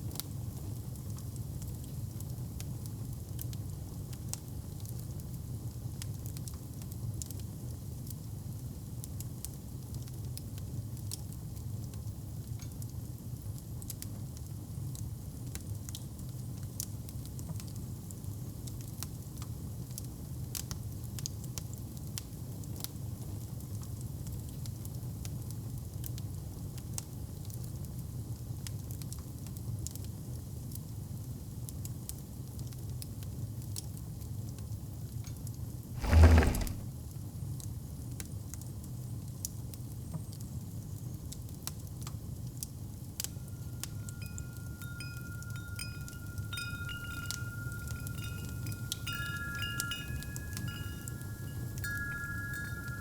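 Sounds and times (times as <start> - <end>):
wind chimes ringing: 36.0 - 36.8, 43.4 - 53.0
fireplace crackling: 36.0 - 36.9, 43.6 - 53.0.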